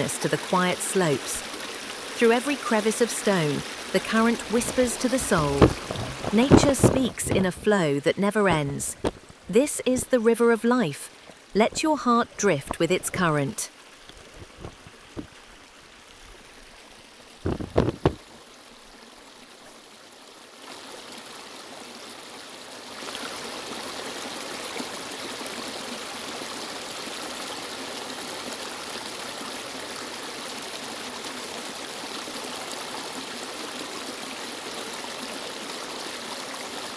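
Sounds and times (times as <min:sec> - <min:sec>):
river water rushing: 0:00.0 - 0:36.9
loud sharp thumps: 0:04.0 - 0:07.7, 0:17.4 - 0:18.2.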